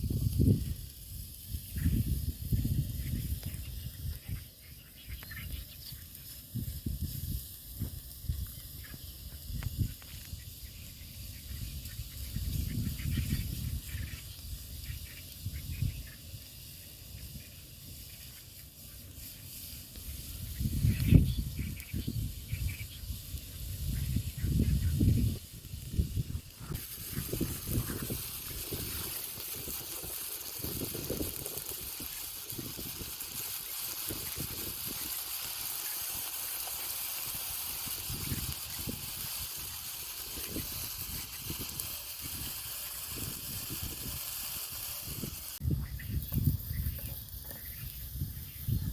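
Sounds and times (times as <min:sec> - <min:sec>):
meat and onions sizzling: 0:00.0 - 0:48.9.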